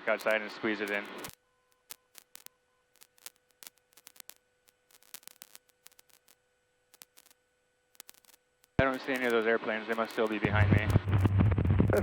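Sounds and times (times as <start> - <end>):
faint steady tone: 1.3 - 8.8.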